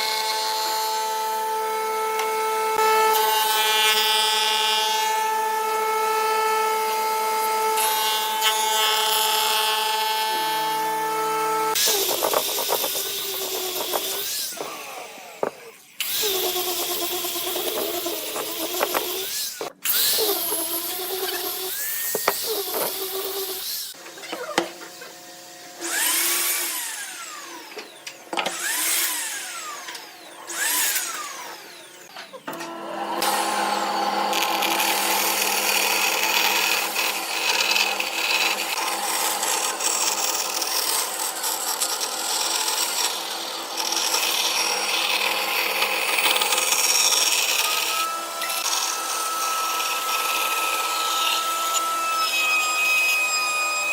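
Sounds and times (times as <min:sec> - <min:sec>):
machine cutting wood: 0:00.0 - 0:53.9
motor whining: 0:10.4 - 0:38.2.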